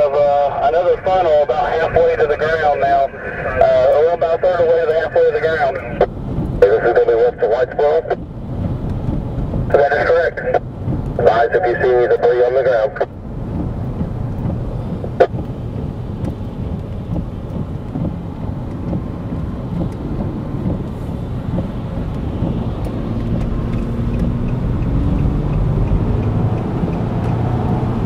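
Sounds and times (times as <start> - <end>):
road and engine rumble: 0.0 - 28.0.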